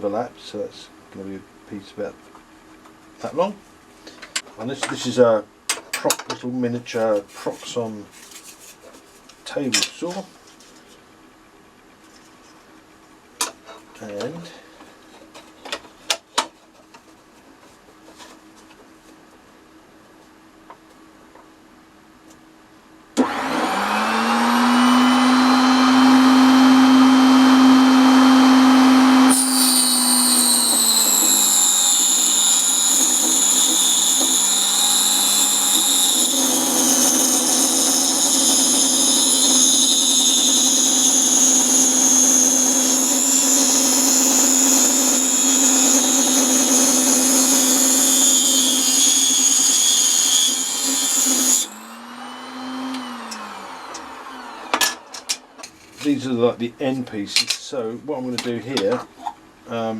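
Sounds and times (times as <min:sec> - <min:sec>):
saw blade cutting plywood: 0:23.2 - 0:55.4
table saw motor whine: 0:23.2 - 0:55.7.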